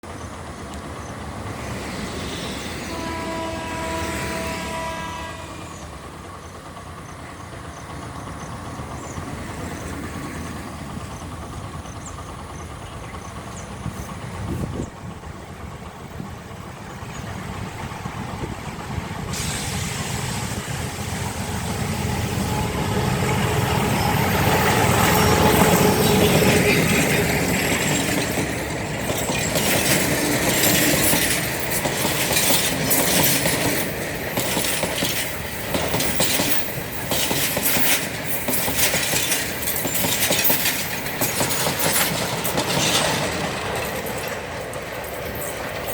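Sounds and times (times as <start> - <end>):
train rumble: 0.0 - 45.9
train horn: 2.8 - 6.0, 21.9 - 24.7.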